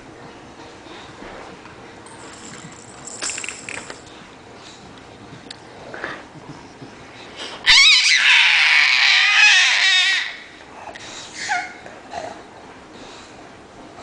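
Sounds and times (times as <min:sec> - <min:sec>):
monkey screeching: 0:07.7 - 0:10.5.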